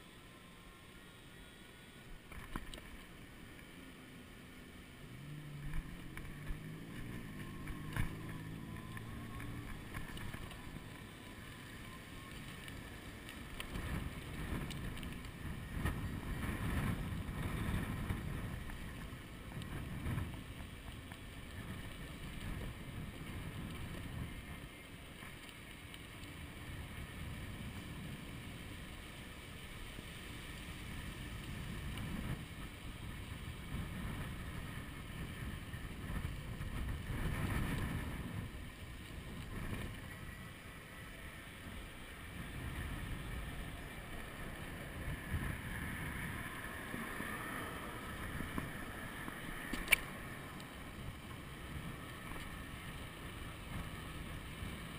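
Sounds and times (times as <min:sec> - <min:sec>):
wind buffeting microphone: 0:12.0 - 0:25.4, 0:30.5 - 0:54.9.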